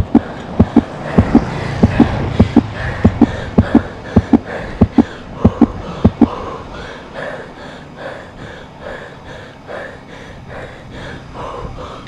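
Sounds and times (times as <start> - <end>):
person panting hard: 0.0 - 12.0.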